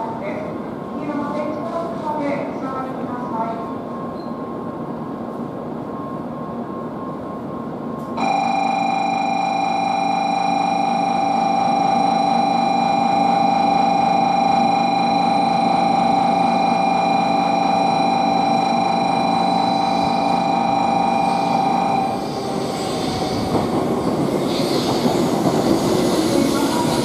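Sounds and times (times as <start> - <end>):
train pulling in: 0.0 - 27.0
high electronic tone: 8.2 - 22.3.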